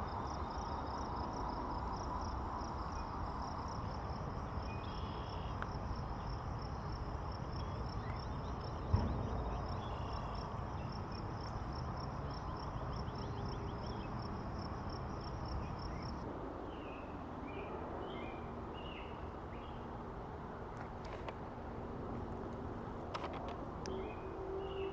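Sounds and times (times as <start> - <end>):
insect chirping: 0.0 - 16.9
low wind rumble: 0.0 - 24.9
bird chirps: 4.7 - 5.6
sharp bump: 8.8 - 10.5.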